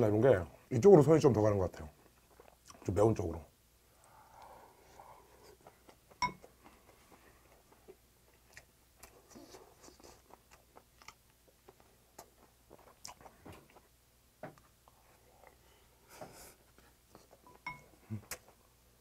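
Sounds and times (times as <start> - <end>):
person chewing: 2.0 - 2.8, 5.2 - 14.0.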